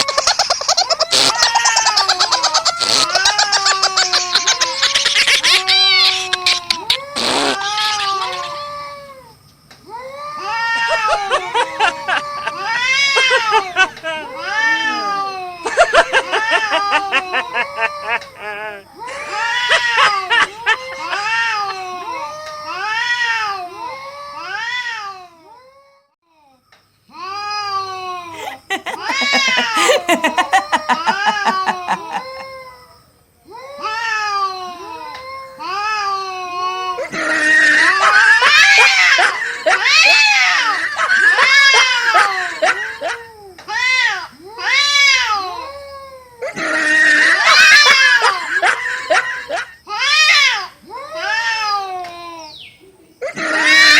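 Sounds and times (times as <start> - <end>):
cats caterwauling: 0.0 - 25.2, 28.4 - 32.6, 53.4 - 53.9
cats yowling in a fight: 1.1 - 15.6, 43.7 - 48.4, 49.9 - 52.1, 53.4 - 53.9.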